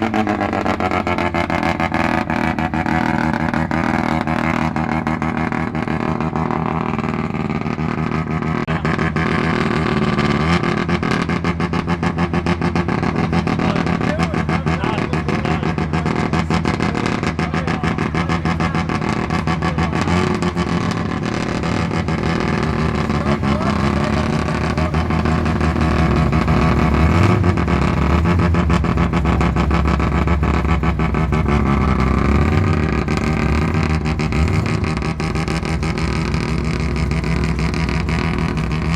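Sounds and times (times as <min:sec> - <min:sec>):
rotary engine passing by: 0:15.6 - 0:38.9.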